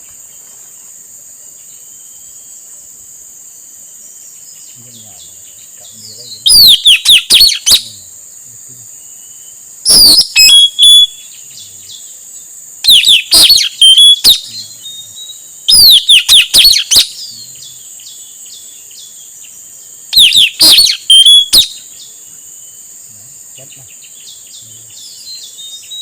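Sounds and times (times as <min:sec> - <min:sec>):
steady high hiss: 0:00.0 - 0:26.0
parrot chirping: 0:06.4 - 0:07.9, 0:09.9 - 0:11.3, 0:12.8 - 0:15.0, 0:15.7 - 0:17.3, 0:20.1 - 0:21.8.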